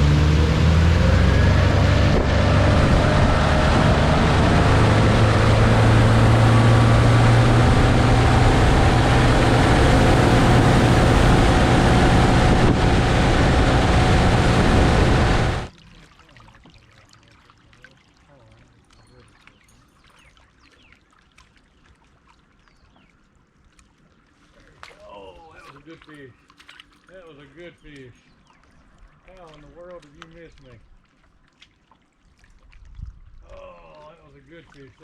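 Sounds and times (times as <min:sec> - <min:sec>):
outboard motor running: 0:00.0 - 0:15.7
wind and water noise: 0:00.0 - 0:35.0.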